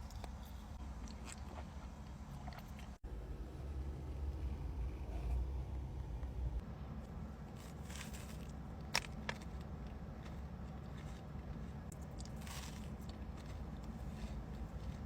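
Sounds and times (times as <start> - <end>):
crunchy food chewing: 0.0 - 3.0, 7.6 - 15.0
low steady hum: 0.0 - 15.0.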